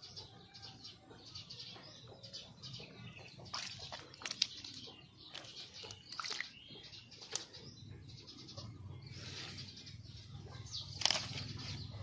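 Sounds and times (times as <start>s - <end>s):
water splashing and sloshing: 3.2s - 7.7s, 10.2s - 12.0s.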